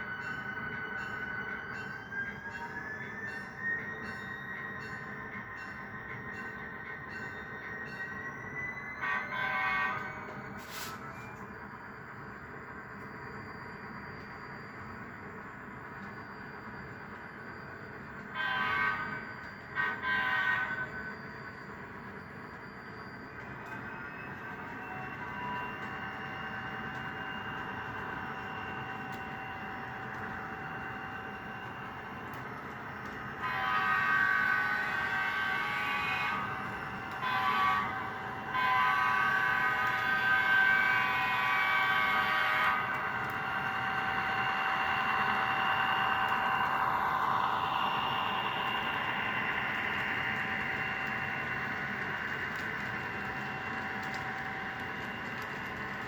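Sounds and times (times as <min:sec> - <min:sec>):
model locomotive diesel engine sound: 0:00.0 - 0:56.0
locomotive horn: 0:09.0 - 0:10.2, 0:18.3 - 0:21.0, 0:33.3 - 0:47.3.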